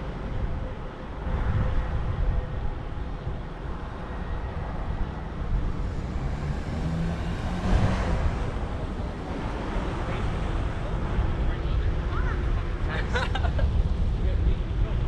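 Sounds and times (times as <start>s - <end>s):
low rumble of road noise: 0.0s - 15.0s
motor vehicle passing close: 5.6s - 10.8s.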